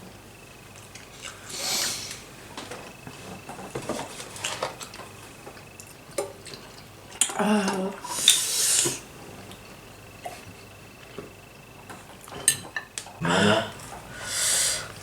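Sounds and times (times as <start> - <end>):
loud breathy hiss: 1.5 - 2.2, 8.1 - 9.0, 14.1 - 15.0
utensils clinking against bowl: 12.2 - 13.1.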